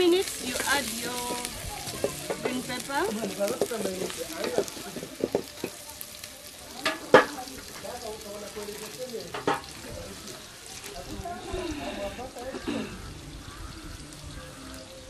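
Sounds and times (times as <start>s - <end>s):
meat sizzling in a pot: 0.0s - 15.0s
wooden spoon scraping a pot: 0.4s - 5.8s.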